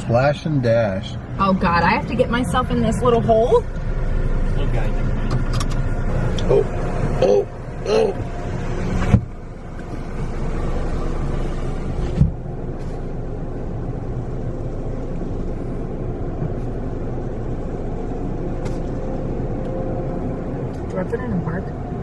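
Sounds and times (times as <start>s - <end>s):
car engine low rumble: 0.0s - 22.0s.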